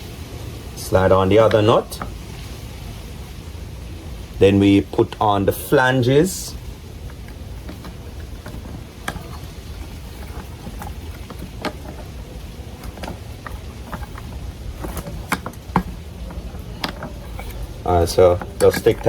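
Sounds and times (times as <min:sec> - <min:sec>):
steady low hum: 0:00.0 - 0:19.0
clicks and taps of plastic parts: 0:07.1 - 0:19.0.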